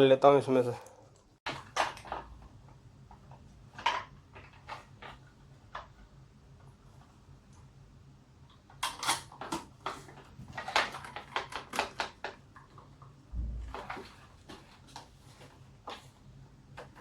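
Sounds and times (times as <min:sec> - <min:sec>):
low thump: 0:13.3 - 0:14.0.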